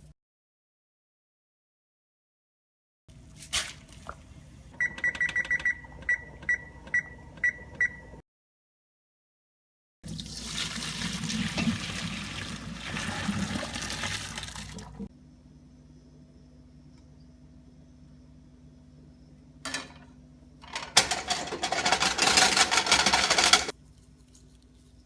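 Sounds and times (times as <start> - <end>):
appliance keypad beeps: 4.8 - 8.2.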